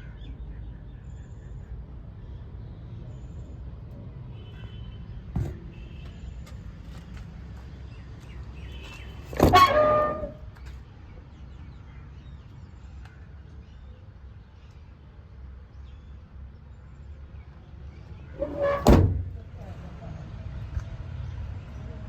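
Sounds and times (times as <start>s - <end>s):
loud clunk with ringing tone: 18.4s - 19.4s.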